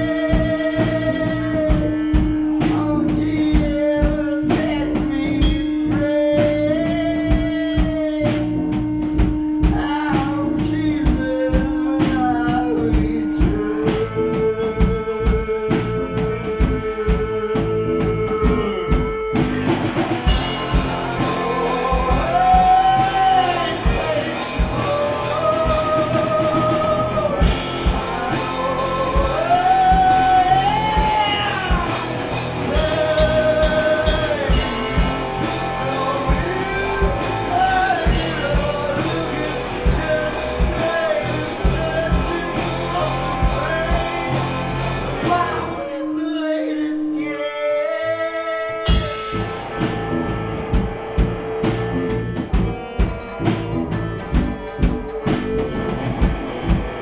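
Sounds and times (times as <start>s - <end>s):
drum hits: 0.0s - 17.7s, 18.5s - 45.7s, 48.9s - 57.0s
rock band playing: 0.0s - 46.2s, 48.7s - 57.0s
person singing: 0.0s - 57.0s.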